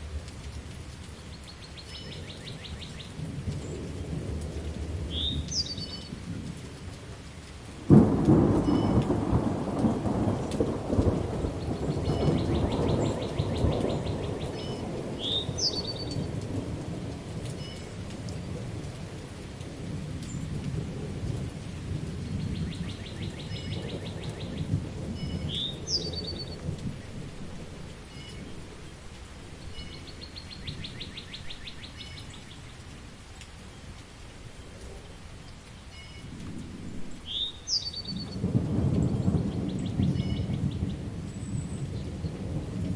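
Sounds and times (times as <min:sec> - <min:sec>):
steady rain: 0:00.0 - 0:42.9
rolling thunder: 0:07.8 - 0:17.5, 0:36.2 - 0:42.9
bird trills and chirps: 0:14.5 - 0:16.2, 0:37.3 - 0:38.4.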